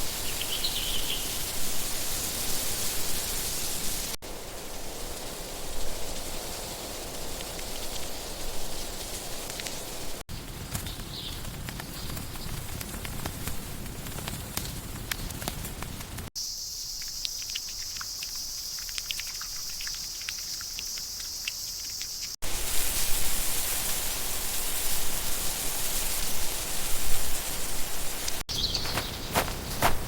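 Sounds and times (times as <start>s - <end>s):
insects shrilling: 0.0s - 10.2s, 16.3s - 29.1s.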